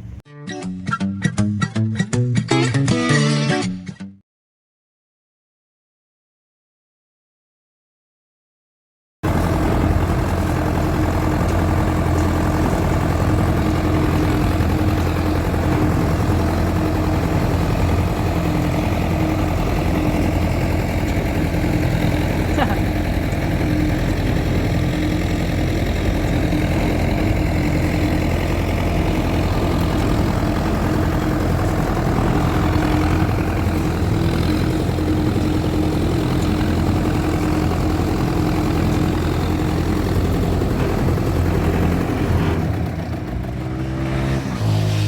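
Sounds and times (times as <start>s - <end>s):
tractor engine running: 0.0s - 0.2s, 9.2s - 45.0s.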